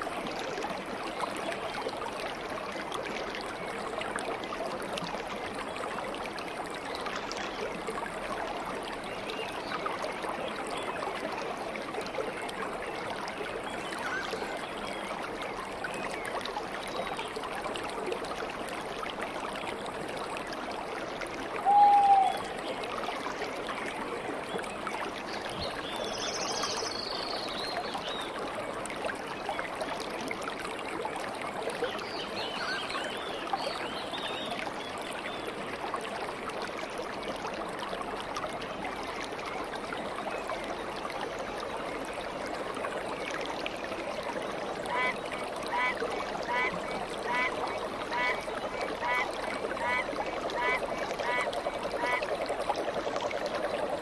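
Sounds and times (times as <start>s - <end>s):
stream babbling: 0.0s - 54.0s
low bird call dipping in pitch: 21.6s - 22.6s.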